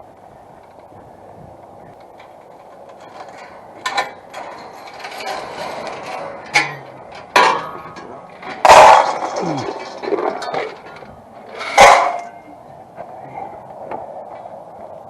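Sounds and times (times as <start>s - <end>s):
rattling and clattering: 1.9s - 12.4s.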